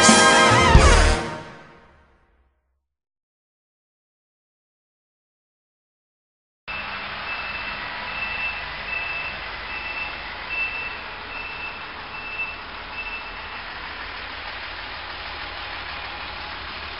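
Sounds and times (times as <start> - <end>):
reversing alarm beeping: 6.7 - 13.8
engine and outdoor noise: 6.7 - 16.9.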